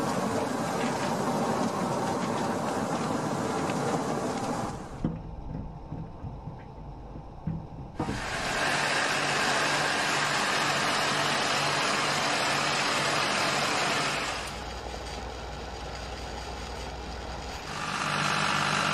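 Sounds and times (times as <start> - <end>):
deep rumble: 4.4 - 8.6
loud even hiss: 8.0 - 18.8.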